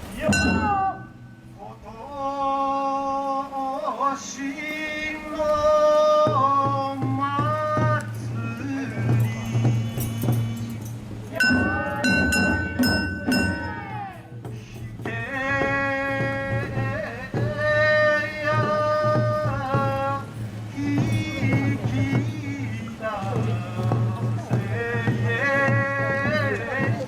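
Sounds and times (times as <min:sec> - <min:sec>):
steady low drum beat: 0:00.0 - 0:01.6, 0:06.2 - 0:27.0
melody of long held notes: 0:11.4 - 0:14.1.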